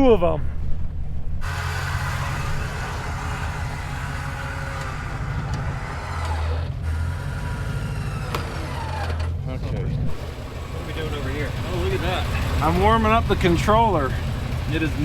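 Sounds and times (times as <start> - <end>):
truck engine idling: 1.4 - 15.0.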